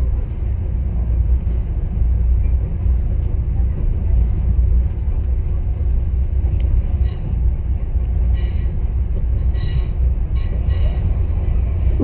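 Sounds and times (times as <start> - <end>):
train rumbling on track: 0.0 - 12.0
high-pitched wheel squeals: 9.4 - 12.0.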